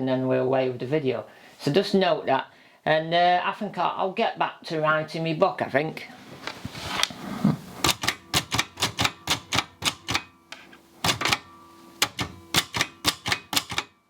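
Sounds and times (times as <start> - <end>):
keyboard typing clacks: 7.8 - 10.3, 11.0 - 14.0.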